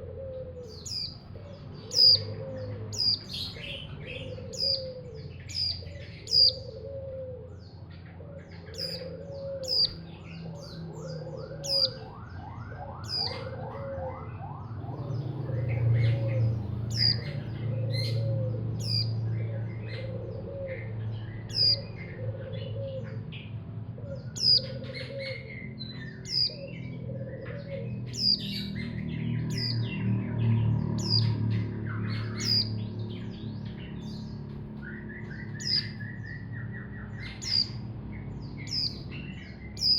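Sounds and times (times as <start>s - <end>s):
lower bird call: 0.0s - 7.8s, 8.5s - 10.1s, 10.9s - 12.1s, 34.8s - 37.9s
bird chirping: 0.0s - 39.9s.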